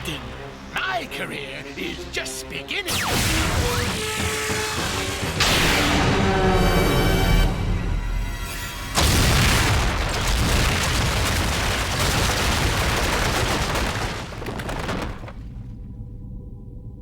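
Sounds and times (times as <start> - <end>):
cartoon explosion: 9.0 - 14.1.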